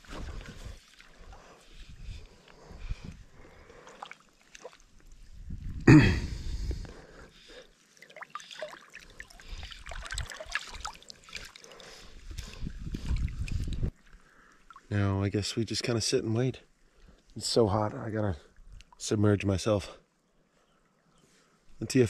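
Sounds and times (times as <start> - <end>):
seawater sloshing: 7.9 - 14.9.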